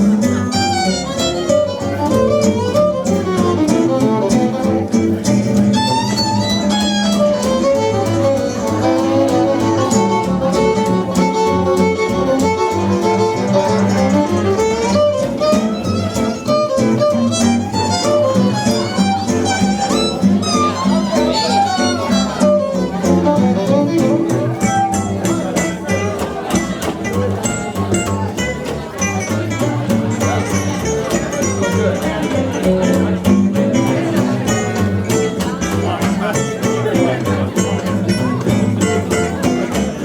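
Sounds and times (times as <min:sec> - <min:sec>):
bass: 0:00.0 - 0:40.0
rhythm guitar: 0:00.0 - 0:40.0
violin solo with vibrato: 0:00.1 - 0:26.2.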